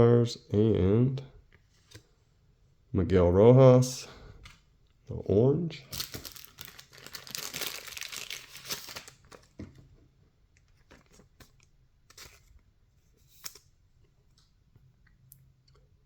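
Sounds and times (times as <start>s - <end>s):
paper cards rustling: 5.9s - 9.6s.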